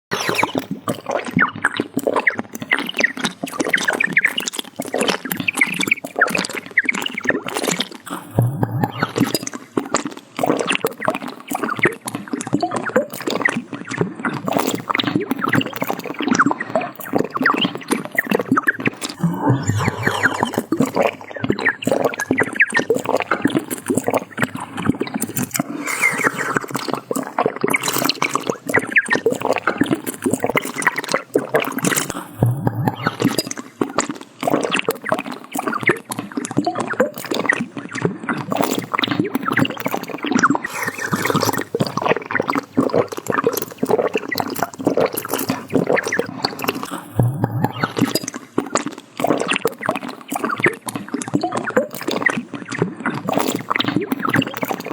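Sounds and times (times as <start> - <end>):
liquid gurgling in bottle: 8.1 - 9.5, 19.2 - 21.4, 32.1 - 33.4, 40.7 - 48.4
wet gulping: 8.1 - 9.5, 19.1 - 22.0, 32.0 - 33.4, 40.7 - 49.4.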